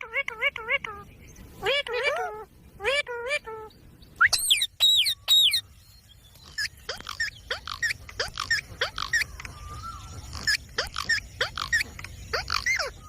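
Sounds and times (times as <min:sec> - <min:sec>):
parrot squawking: 0:06.6 - 0:09.3, 0:10.4 - 0:13.0.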